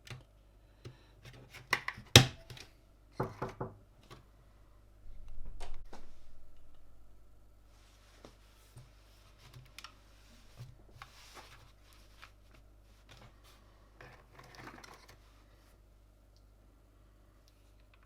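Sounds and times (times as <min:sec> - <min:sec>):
low hum: 0:04.9 - 0:07.7.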